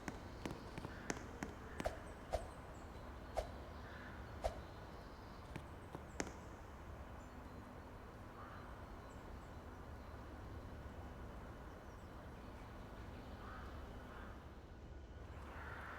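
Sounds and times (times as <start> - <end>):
sharp taps: 0.0 - 2.5, 5.5 - 6.5
outdoor background noise: 0.0 - 15.9.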